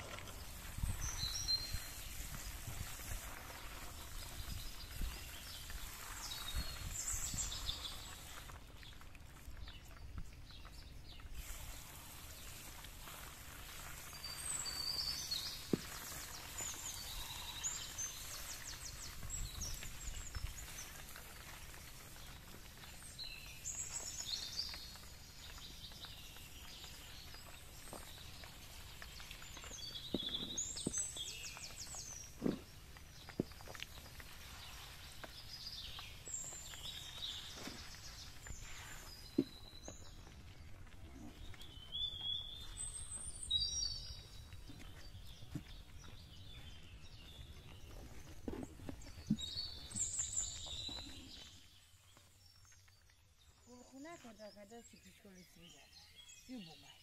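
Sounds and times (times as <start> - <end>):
small birds chirping and trilling: 0.0 - 57.0
background hiss: 11.2 - 22.2, 22.9 - 40.2.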